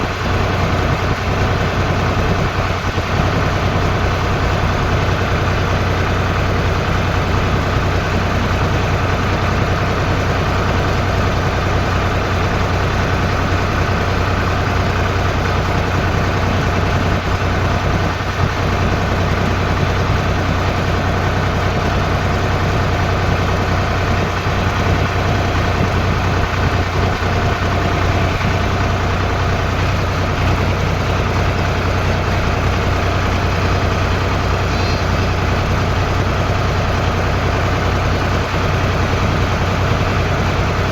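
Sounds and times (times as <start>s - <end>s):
tractor engine droning: 0.0s - 40.9s.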